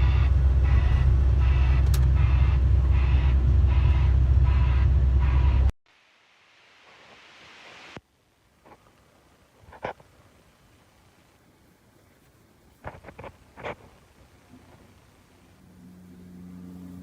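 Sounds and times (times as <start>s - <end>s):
heavy vehicle engine rumble: 0.0s - 5.7s, 13.0s - 17.0s
faint hiss: 5.9s - 15.6s.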